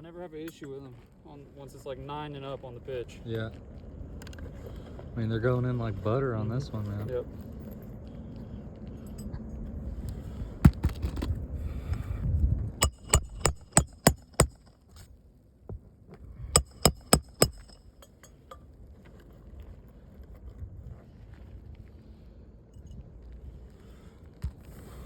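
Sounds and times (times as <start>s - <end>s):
hammer striking metal tool: 12.8s - 14.7s, 16.6s - 18.6s.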